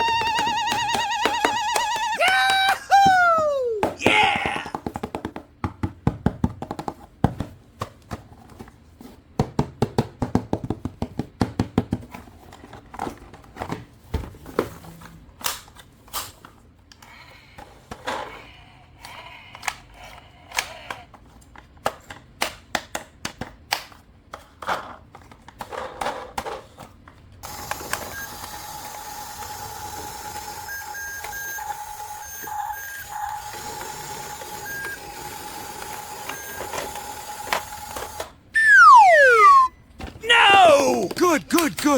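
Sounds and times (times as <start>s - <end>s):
electronic toy whir: 0.0s - 2.2s, 27.4s - 39.7s
held electronic tone: 38.6s - 39.7s
short beeps: 38.6s - 39.7s.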